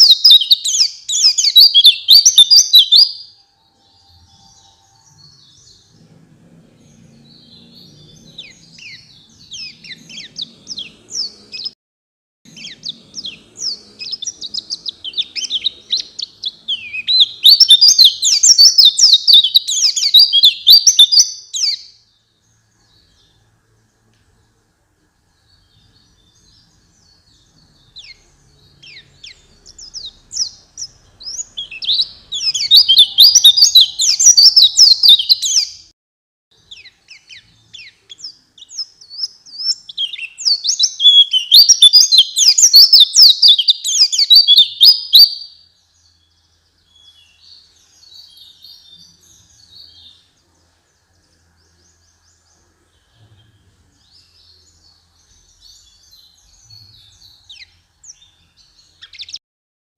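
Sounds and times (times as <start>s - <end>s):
bird chattering song: 0.0s - 11.8s, 12.5s - 24.6s, 25.4s - 35.9s, 36.6s - 59.4s.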